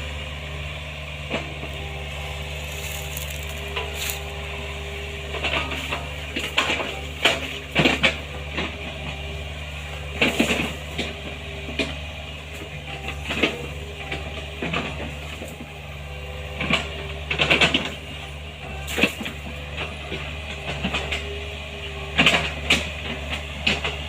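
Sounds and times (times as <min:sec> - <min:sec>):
excavator diesel engine running: 0:00.0 - 0:24.0
cracks knocks and crunches: 0:02.6 - 0:04.3.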